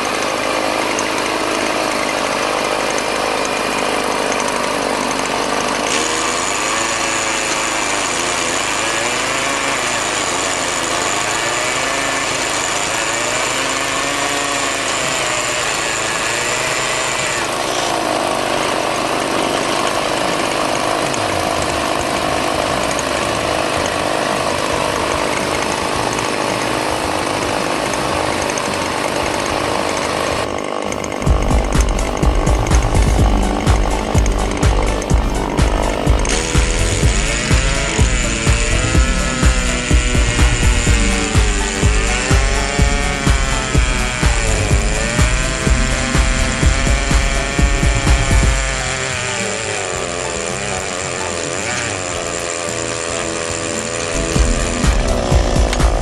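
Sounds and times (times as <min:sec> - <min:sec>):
motor-driven machinery running: 0:00.0 - 0:56.0
high machine whine: 0:19.9 - 0:56.0.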